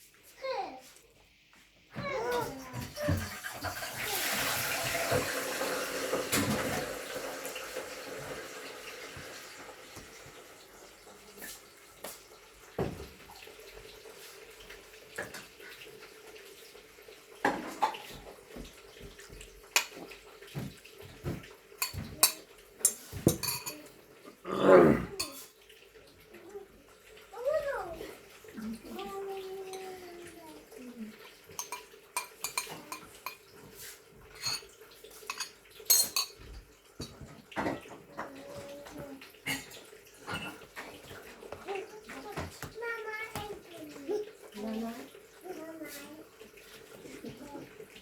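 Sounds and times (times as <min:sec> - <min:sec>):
water running: 0:00.0 - 0:48.0
dishes clicking and knocking: 0:19.7 - 0:24.0, 0:25.2 - 0:25.5, 0:31.5 - 0:33.6, 0:34.3 - 0:38.3.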